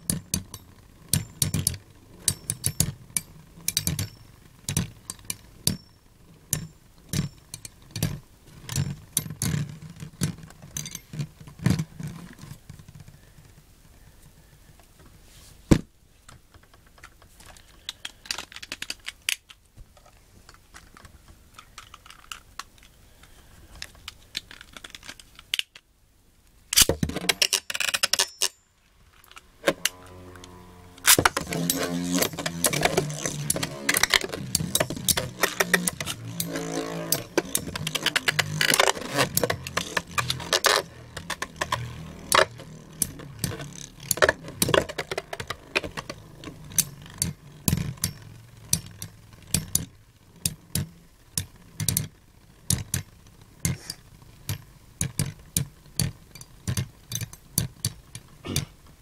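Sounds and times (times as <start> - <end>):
spinning tops clashing and scraping: 29.2 - 51.0.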